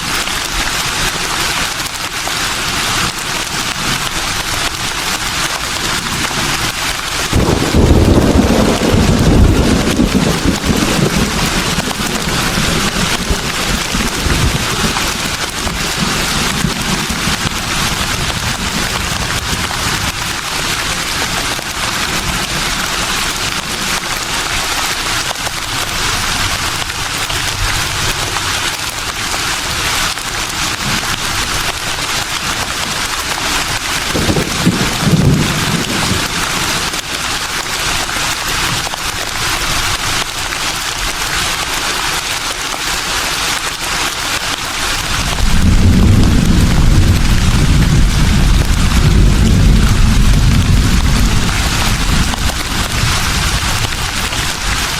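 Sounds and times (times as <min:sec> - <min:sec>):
leaves rustling in breeze: 0:00.0 - 0:54.9
wind gust rumbles: 0:07.2 - 0:20.5, 0:45.0 - 0:54.9.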